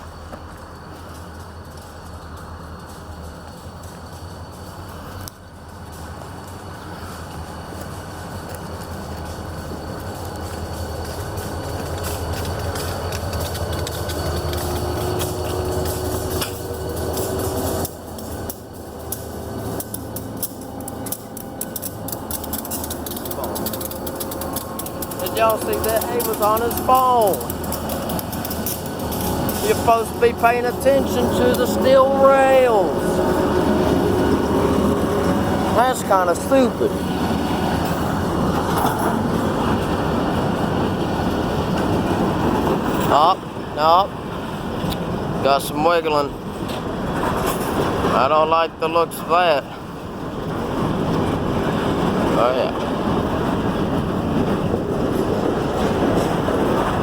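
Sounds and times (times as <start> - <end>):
train passing with rumble: 0.0 - 57.0
sharp clicks and knocks: 10.0 - 32.0.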